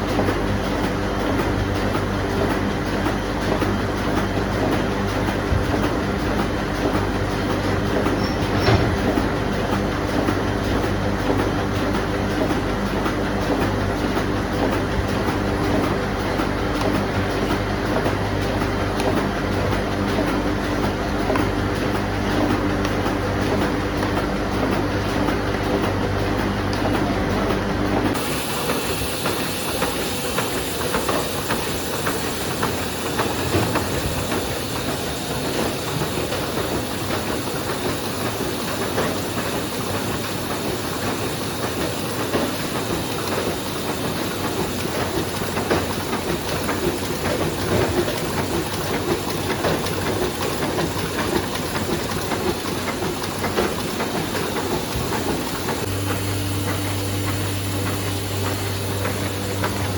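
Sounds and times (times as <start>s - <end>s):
low machine hum: 0.0s - 59.9s
printing press clattering: 0.0s - 59.9s
steady hiss: 28.2s - 59.9s.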